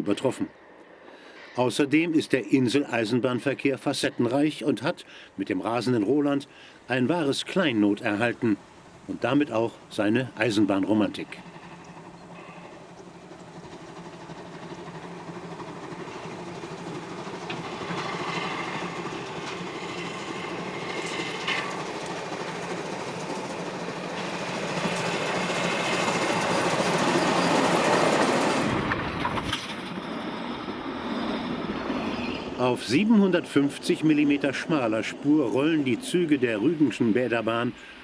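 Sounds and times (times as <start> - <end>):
steam train wheels clattering: 11.3 - 32.6.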